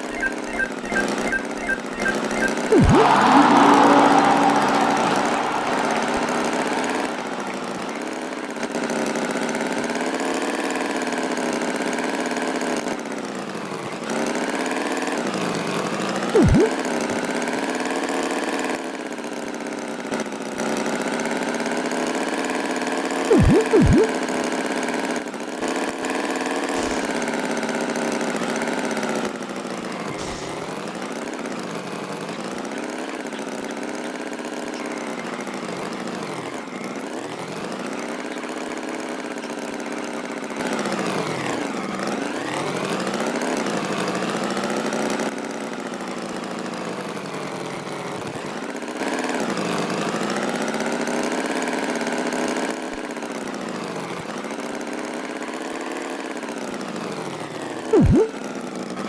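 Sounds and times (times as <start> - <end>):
tractor engine revving: 0.0 - 8.8.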